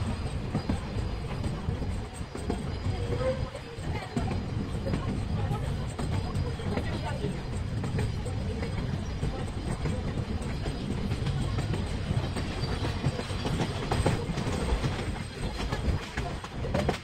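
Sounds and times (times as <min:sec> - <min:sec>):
train carriages rumbling: 0:00.0 - 0:17.0
wheels clattering over rails: 0:00.0 - 0:17.0.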